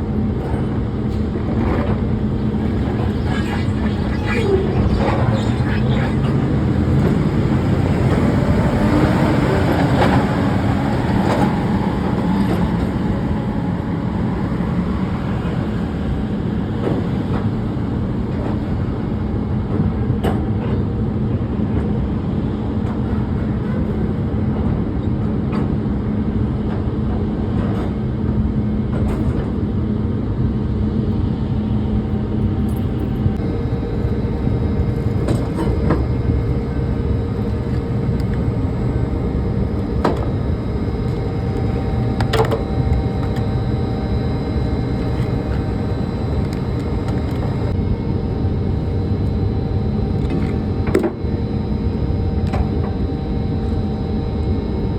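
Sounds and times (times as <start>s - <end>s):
engine rumble: 0.0s - 19.6s, 32.7s - 51.8s.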